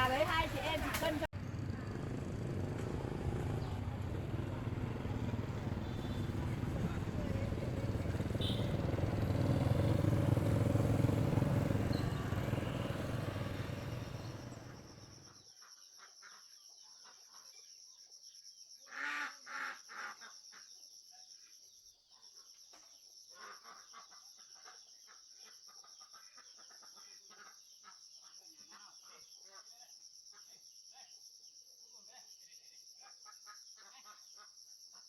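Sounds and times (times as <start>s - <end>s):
vehicle engine running: 0.0s - 15.3s.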